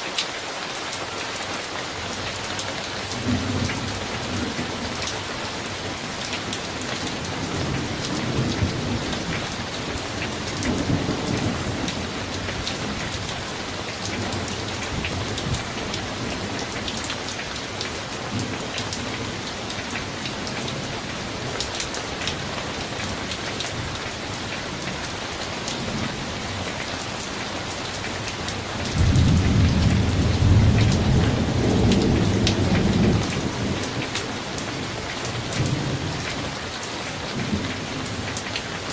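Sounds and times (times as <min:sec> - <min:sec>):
heavy rain: 0:00.0 - 0:38.9
thunder rumbling: 0:28.8 - 0:34.8.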